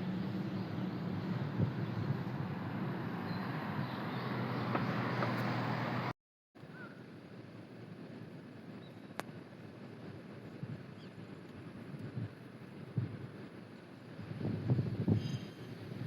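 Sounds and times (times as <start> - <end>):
wind on microphone: 0.0 - 5.4, 8.7 - 16.0
low engine hum: 0.0 - 16.0.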